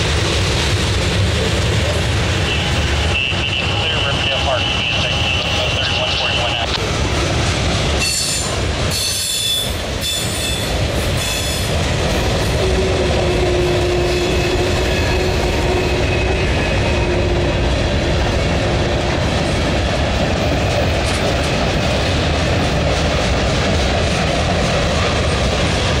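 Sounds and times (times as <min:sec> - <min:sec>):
freight train wheels rumbling: 0:00.0 - 0:26.0
low steady whine: 0:03.0 - 0:06.8.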